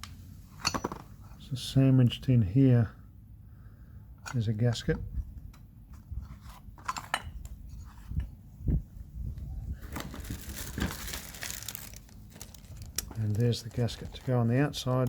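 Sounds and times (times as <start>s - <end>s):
parts clicking and knocking: 0.0s - 1.3s
plastic packaging crinkling: 9.8s - 15.0s.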